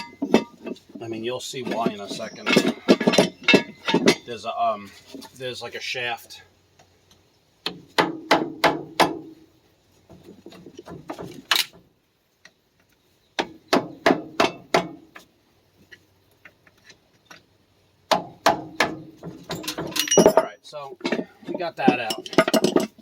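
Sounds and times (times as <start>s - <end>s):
hammer striking metal axle: 0.0s - 0.8s, 1.7s - 4.3s, 13.4s - 15.0s, 18.1s - 20.5s.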